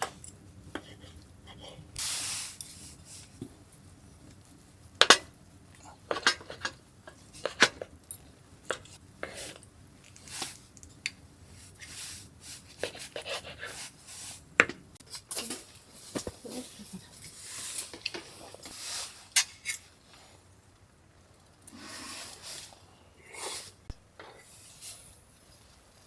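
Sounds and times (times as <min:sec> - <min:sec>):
cookware and utensils clinking: 0:05.0 - 0:09.6, 0:14.6 - 0:20.0.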